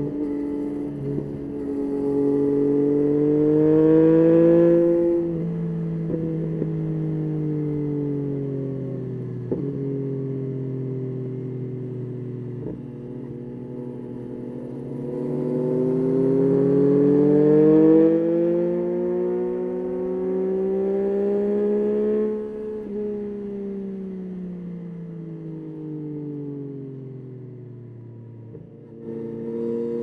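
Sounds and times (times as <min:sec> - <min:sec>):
motorcycle engine revving: 0:00.0 - 0:06.9, 0:12.6 - 0:23.5, 0:28.5 - 0:30.0.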